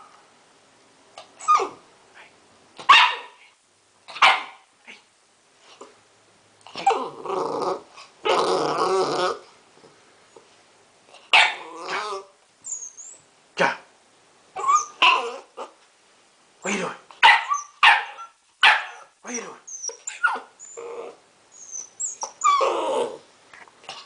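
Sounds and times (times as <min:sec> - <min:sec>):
puppy barking: 0:02.8 - 0:03.5, 0:04.1 - 0:04.7, 0:11.3 - 0:12.0, 0:17.2 - 0:19.1
puppy growling: 0:06.6 - 0:09.6, 0:11.5 - 0:12.4, 0:14.6 - 0:15.8, 0:19.4 - 0:24.0.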